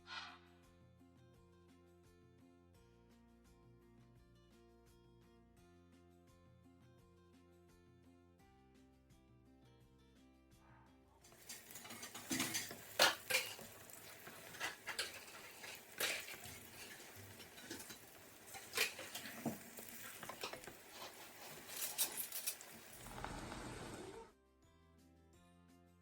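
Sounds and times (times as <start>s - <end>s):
utensils and dishes clinking: 11.2s - 24.2s.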